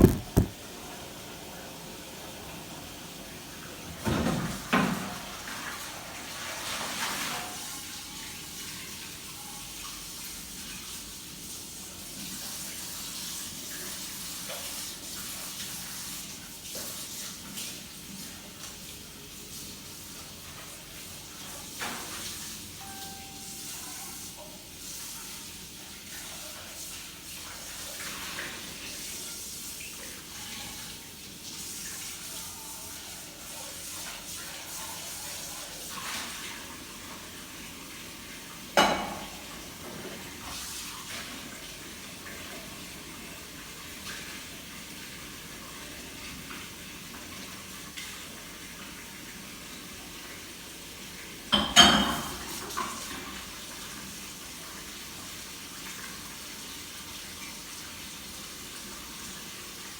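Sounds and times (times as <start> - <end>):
sharp knock: 0.0 - 0.6.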